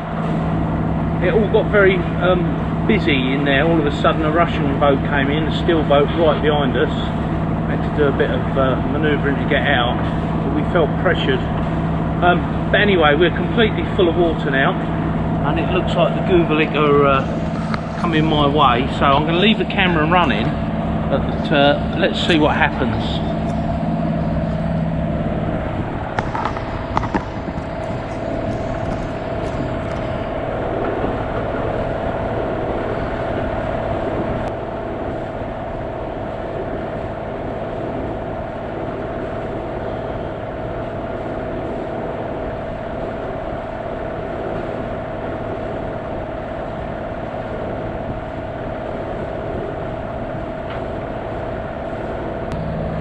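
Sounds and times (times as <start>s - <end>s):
boat engine drone: 0.0s - 53.0s
water noise: 0.0s - 53.0s
wind: 0.0s - 53.0s.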